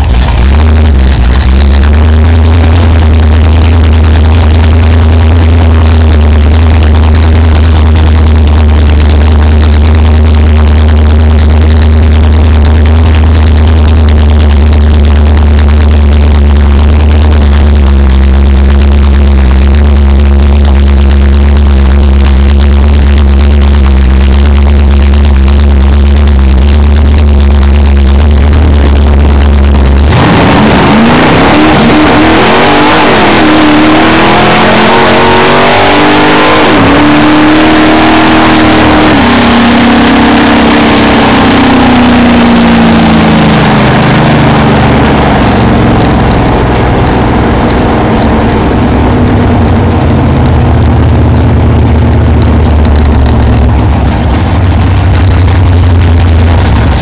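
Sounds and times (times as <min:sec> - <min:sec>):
race car engine at full throttle: 0:00.0 - 0:57.0.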